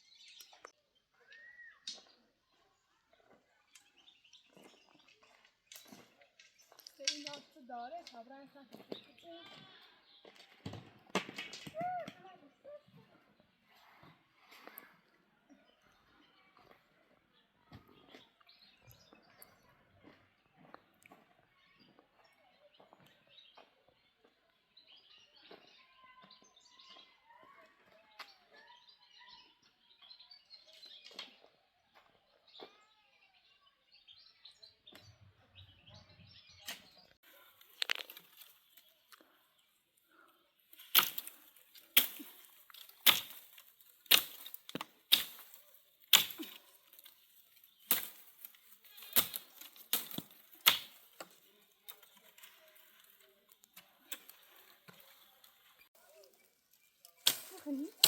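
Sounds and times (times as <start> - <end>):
faint bird chirps: 0.0 - 7.1.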